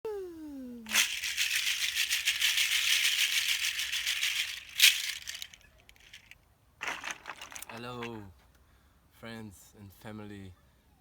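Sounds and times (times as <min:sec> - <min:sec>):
hand rattle shaken fast: 0:00.9 - 0:08.1.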